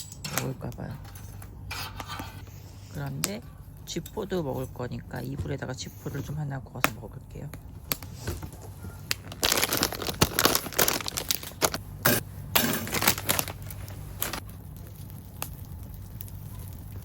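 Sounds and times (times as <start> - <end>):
plastic packaging crinkling: 8.0 - 17.0.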